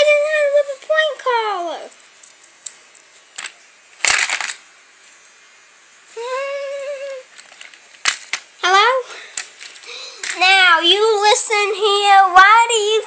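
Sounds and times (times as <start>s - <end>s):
child's voice holding a note: 0.0s - 2.0s, 6.2s - 7.3s, 8.6s - 9.2s, 9.9s - 13.0s.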